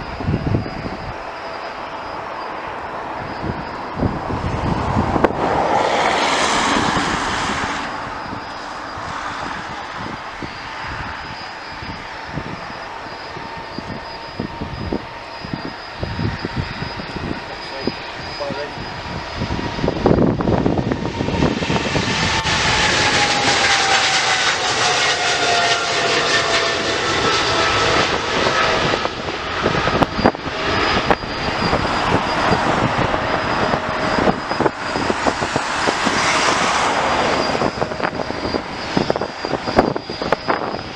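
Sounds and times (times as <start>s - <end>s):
airliner engines passing by: 0.0s - 40.9s.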